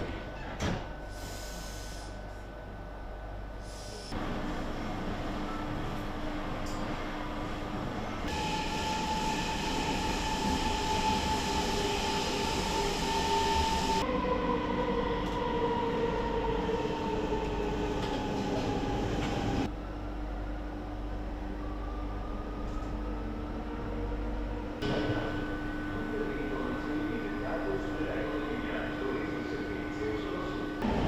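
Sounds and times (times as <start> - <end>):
train rumble: 0.0 - 19.7
electric train motor whine: 4.2 - 15.5.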